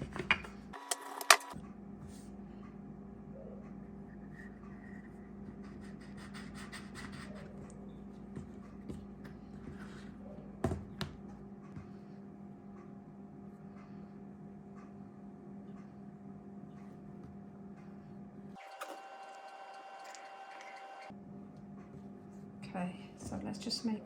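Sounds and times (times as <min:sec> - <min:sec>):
steady low hum: 0:01.4 - 0:18.6.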